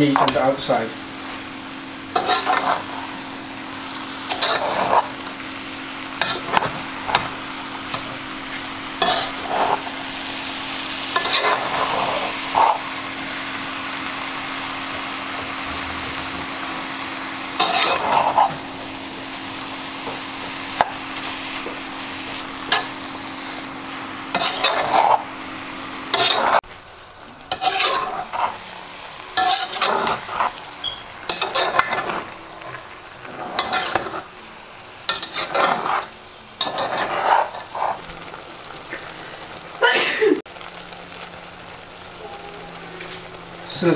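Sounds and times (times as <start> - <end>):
meat and vegetables sizzling: 0.0 - 43.9
metal spatula scraping pot: 2.1 - 2.9, 4.3 - 5.2, 9.0 - 10.0, 11.1 - 12.8, 17.6 - 18.6, 24.3 - 25.3, 26.1 - 26.6, 27.5 - 28.6, 29.4 - 34.3, 35.1 - 38.1.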